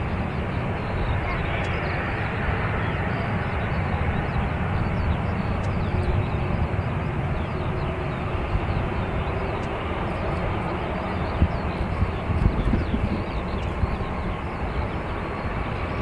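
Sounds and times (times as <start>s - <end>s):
jet engines rumbling: 0.0s - 16.0s
wind buffeting microphone: 0.0s - 16.0s.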